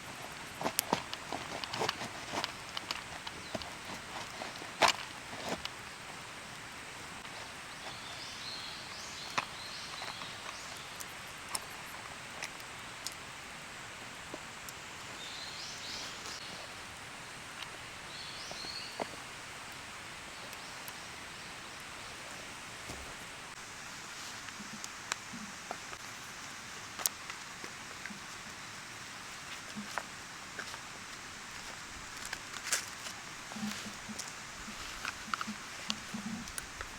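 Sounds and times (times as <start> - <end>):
outdoor background: 0.0 - 36.9
bird chirping: 7.6 - 11.0, 15.1 - 16.7, 18.0 - 19.3.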